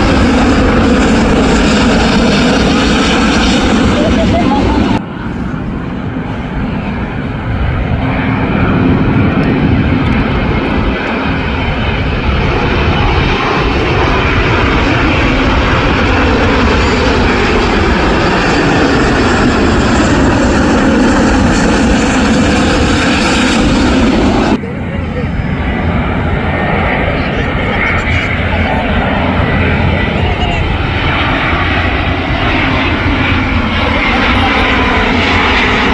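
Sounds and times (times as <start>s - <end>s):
airliner engines overhead: 0.0s - 35.9s.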